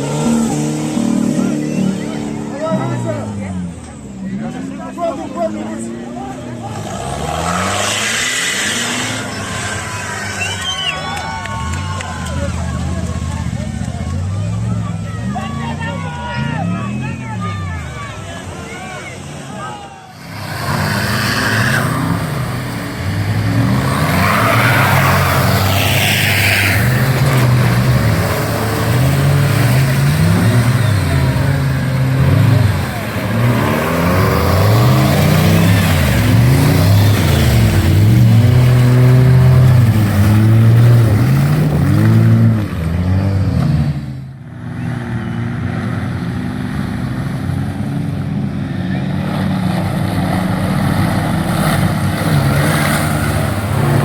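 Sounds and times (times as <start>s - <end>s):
off-road engine revving: 0.0s - 54.0s.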